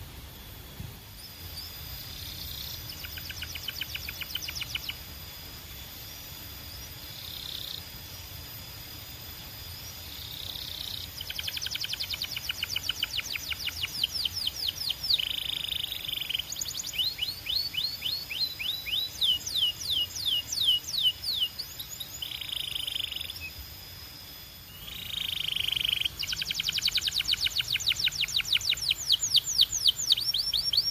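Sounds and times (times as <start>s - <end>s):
canary singing trills: 1.2s - 5.1s, 9.6s - 23.7s, 24.6s - 30.9s.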